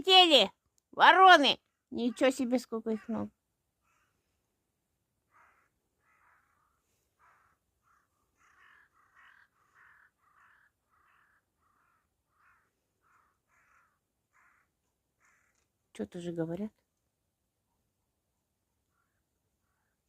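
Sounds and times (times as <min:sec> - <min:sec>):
crows cawing: 0:02.0 - 0:04.3, 0:05.2 - 0:15.8, 0:18.8 - 0:20.0.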